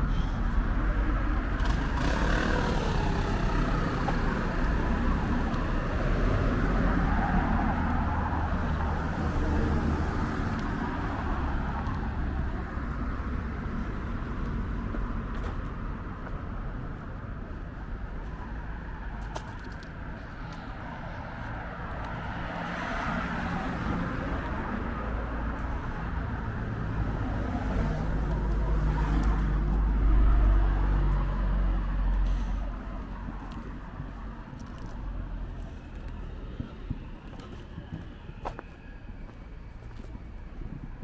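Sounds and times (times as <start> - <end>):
cars passing rumble: 0.0 - 41.0.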